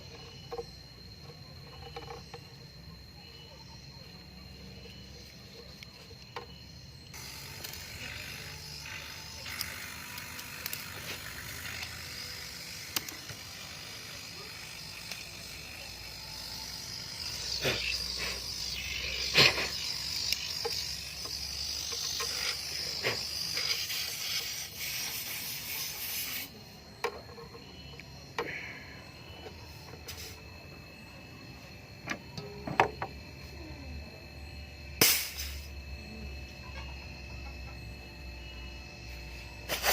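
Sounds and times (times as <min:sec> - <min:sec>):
pressurised gas hissing: 0:21.9 - 0:26.5.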